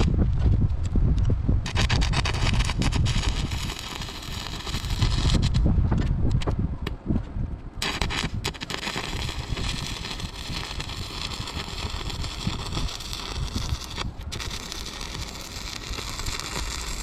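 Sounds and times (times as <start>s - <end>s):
welding arc crackling: 1.6s - 5.6s, 7.8s - 17.0s.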